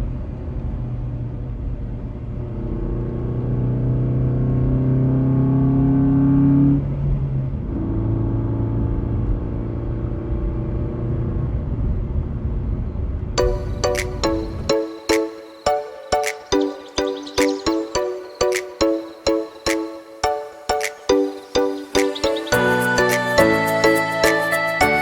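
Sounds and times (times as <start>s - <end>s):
music: 13.4s - 25.0s.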